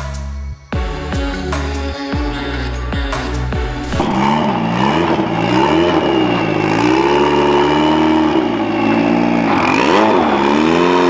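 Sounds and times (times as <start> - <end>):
car engine revving: 2.8 - 11.0.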